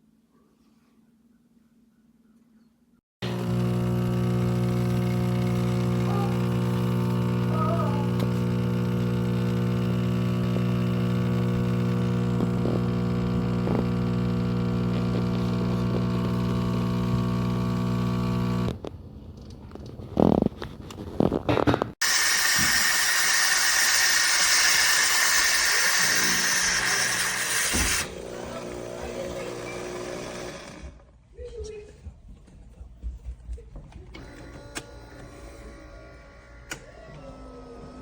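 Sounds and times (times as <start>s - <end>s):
coffee machine humming: 3.2s - 18.9s, 22.0s - 31.1s, 34.2s - 38.0s.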